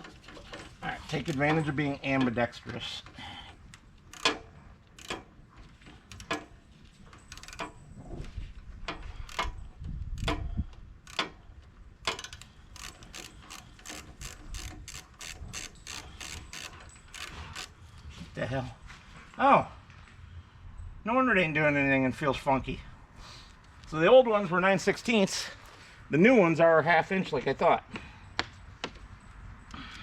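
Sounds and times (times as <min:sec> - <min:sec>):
ratchet wrench clicking: 0:03.7 - 0:05.3, 0:06.1 - 0:06.4, 0:07.3 - 0:07.8, 0:09.2 - 0:11.4, 0:12.0 - 0:17.8.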